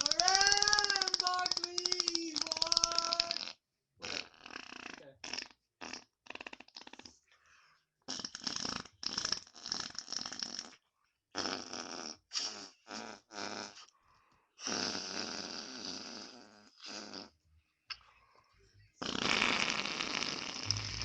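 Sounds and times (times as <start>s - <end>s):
imitation fart noises: 0.0s - 7.2s, 8.0s - 13.9s, 14.6s - 17.4s, 19.0s - 21.0s.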